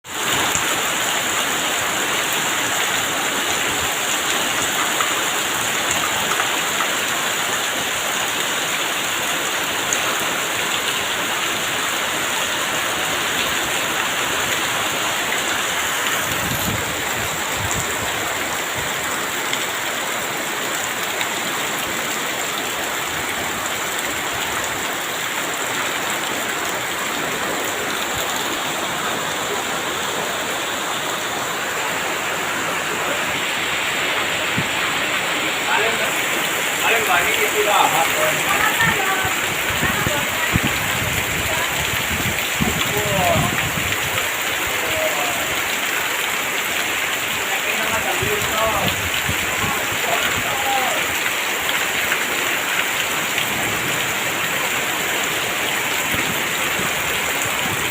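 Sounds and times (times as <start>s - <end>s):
heavy rain pouring: 0.0s - 57.9s.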